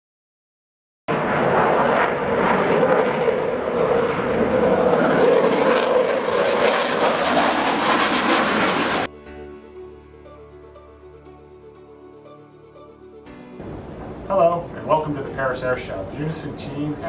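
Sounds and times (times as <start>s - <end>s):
airplane engine roar: 1.1s - 9.4s, 13.3s - 17.0s.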